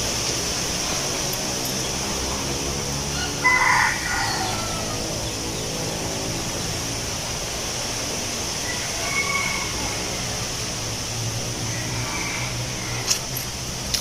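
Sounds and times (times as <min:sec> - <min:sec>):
wind in leaves: 0:00.0 - 0:14.0
rooster crowing: 0:03.1 - 0:05.4, 0:08.6 - 0:10.5, 0:11.6 - 0:13.3.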